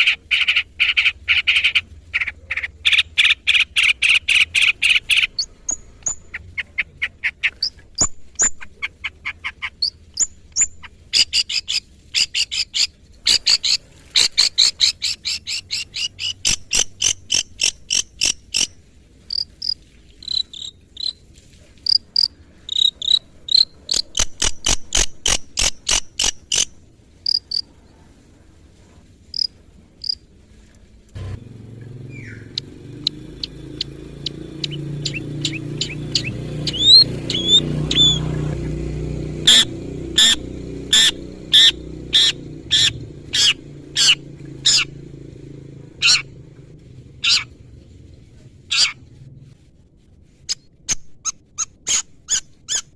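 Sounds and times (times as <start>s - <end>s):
shrike chattering trills: 32.0s - 38.4s, 39.5s - 45.0s
high whistled bird notes: 32.1s - 38.3s.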